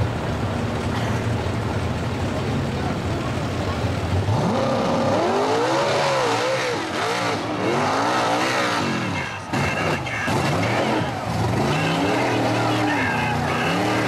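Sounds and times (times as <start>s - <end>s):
truck engine revving hard: 3.1s - 14.0s.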